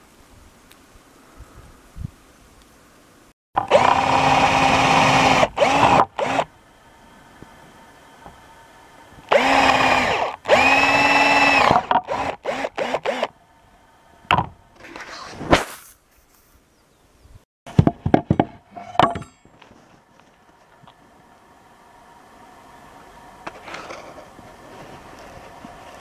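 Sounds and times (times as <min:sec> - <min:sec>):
power tool motor running: 0:03.6 - 0:06.5, 0:09.3 - 0:13.3.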